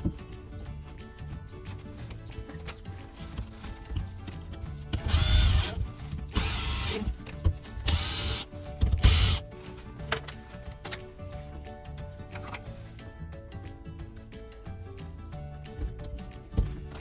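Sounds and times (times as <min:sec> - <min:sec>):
power drill running: 0:05.0 - 0:07.0, 0:07.9 - 0:08.4.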